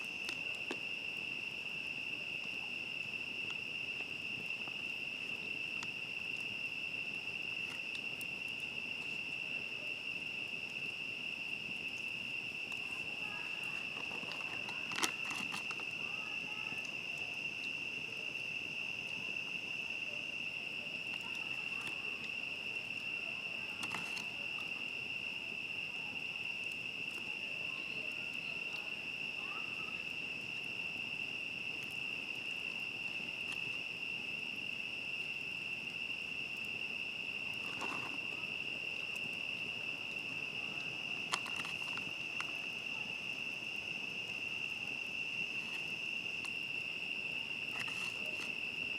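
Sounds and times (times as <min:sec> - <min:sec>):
campfire crackling: 0:00.0 - 0:48.9
crickets chirping: 0:00.0 - 0:48.9.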